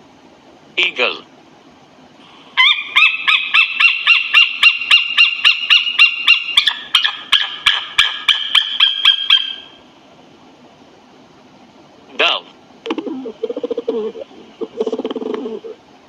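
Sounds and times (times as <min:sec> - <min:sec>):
eagle calling: 0:02.3 - 0:09.9, 0:12.2 - 0:15.8.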